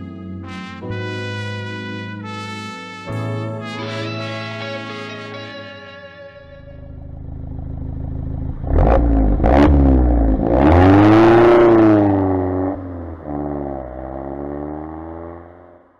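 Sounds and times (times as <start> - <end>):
car engine revving: 6.4 - 15.9.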